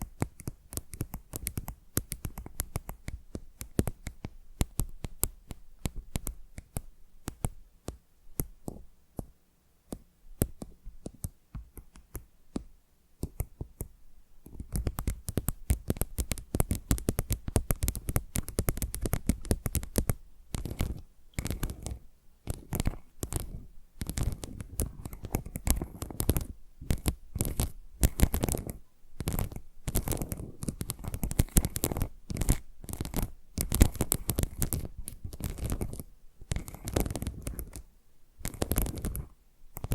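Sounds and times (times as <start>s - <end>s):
fingernails tapping and scratching tile: 14.5s - 37.8s, 38.4s - 39.9s.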